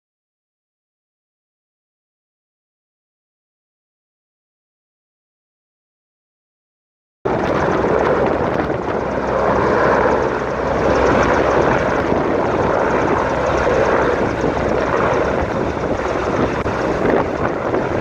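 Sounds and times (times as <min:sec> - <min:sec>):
helicopter engine and rotor: 0:07.3 - 0:18.0.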